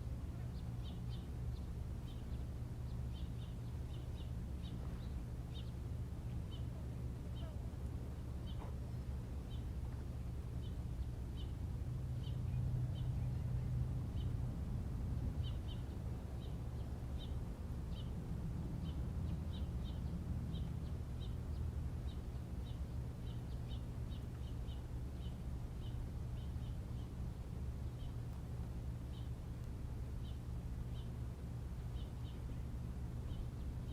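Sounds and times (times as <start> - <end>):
steady low rumble: 0.0 - 33.9
small bird chirping: 0.3 - 7.7, 8.4 - 9.8, 15.4 - 31.2, 31.8 - 33.9.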